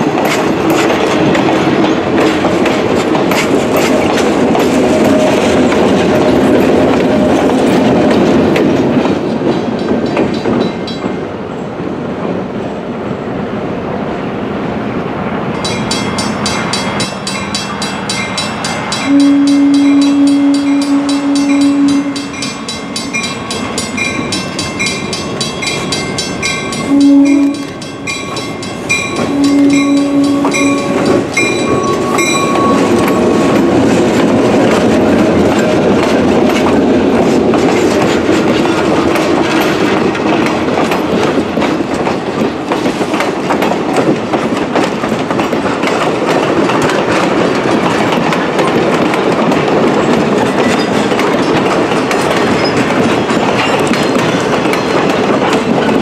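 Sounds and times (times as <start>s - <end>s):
wheels clacking over rail joints: 0.0s - 12.4s, 15.4s - 56.0s
train rumbling past: 0.0s - 56.0s
crossing bell ringing: 9.3s - 11.4s, 15.6s - 34.3s, 50.4s - 56.0s
locomotive horn: 19.0s - 22.4s, 26.9s - 27.8s, 29.1s - 33.6s.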